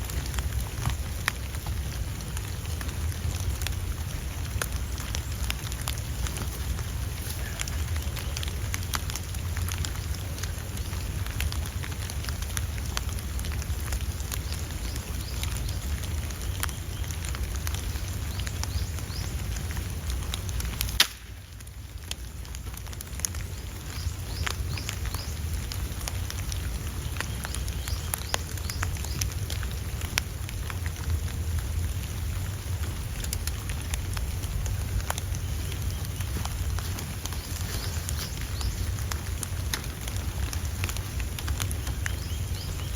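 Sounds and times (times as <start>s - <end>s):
low wind rumble: 0.0s - 42.9s
small crackles and ticks: 0.0s - 42.9s.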